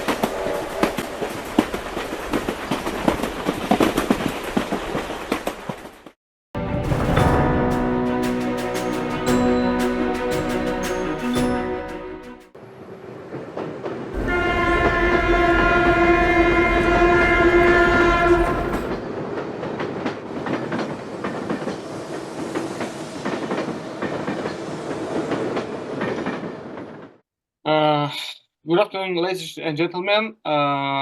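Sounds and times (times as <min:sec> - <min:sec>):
train horn chord: 0:06.6 - 0:12.5, 0:14.2 - 0:19.0
train rumble: 0:06.6 - 0:27.2
train wheels clicking over rail joints: 0:18.4 - 0:27.2.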